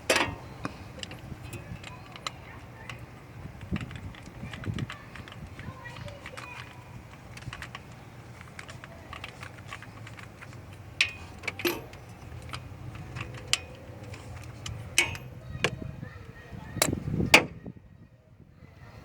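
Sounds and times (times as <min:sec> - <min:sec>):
wrench clicking on metal: 0:08.6 - 0:15.3.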